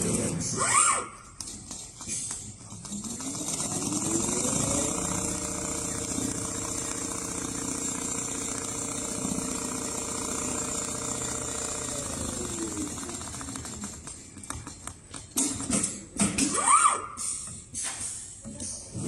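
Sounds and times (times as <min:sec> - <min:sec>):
sewing machine humming: 0:02.8 - 0:14.5.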